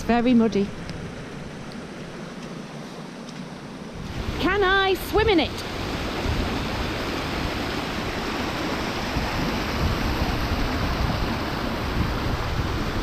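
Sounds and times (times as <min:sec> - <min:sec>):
waterfall rushing: 0:04.1 - 0:13.0.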